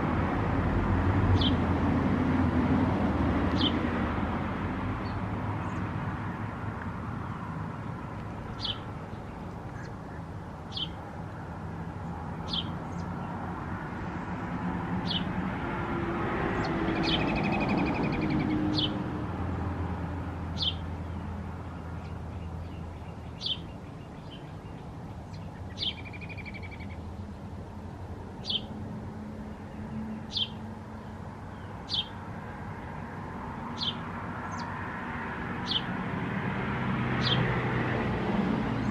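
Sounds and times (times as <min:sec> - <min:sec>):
small birds chirping: 0:01.4 - 0:01.6, 0:03.5 - 0:03.8, 0:07.2 - 0:11.1, 0:12.0 - 0:13.4, 0:15.0 - 0:15.3, 0:16.6 - 0:19.0, 0:20.5 - 0:27.3, 0:28.4 - 0:28.8, 0:29.5 - 0:32.4, 0:33.7 - 0:34.8, 0:35.6 - 0:35.9, 0:37.2 - 0:37.5.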